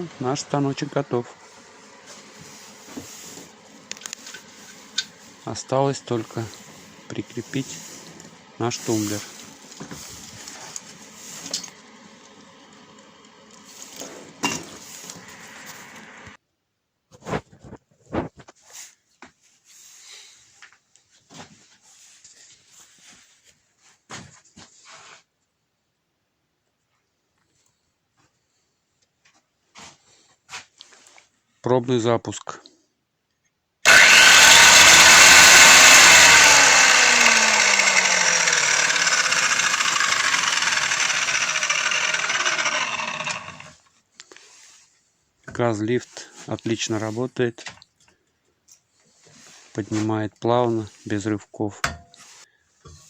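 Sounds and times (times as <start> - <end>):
angle grinder winding down: 0.0 - 16.4, 33.9 - 43.8
faint scraping and rustling: 17.1 - 25.5, 44.0 - 53.0.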